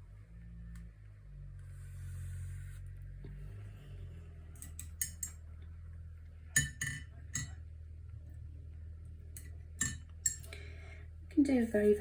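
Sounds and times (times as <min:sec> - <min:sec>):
steady low hum: 0:00.0 - 0:12.0
paintbrush clinking on container: 0:04.6 - 0:05.4, 0:06.6 - 0:07.6, 0:09.8 - 0:10.6.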